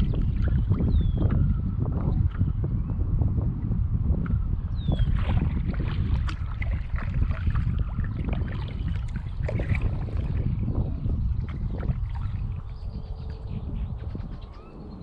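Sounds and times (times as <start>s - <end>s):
wind buffeting microphone: 0.0s - 15.0s
paddle splashing water: 5.0s - 12.9s.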